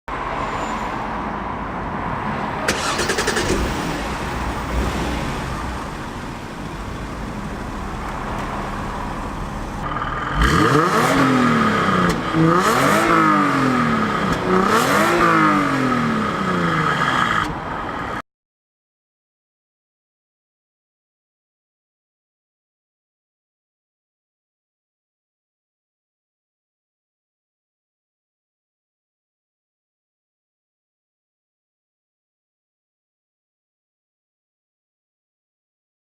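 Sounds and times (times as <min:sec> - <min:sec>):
car engine idling and revving: 0:01.4 - 0:18.2.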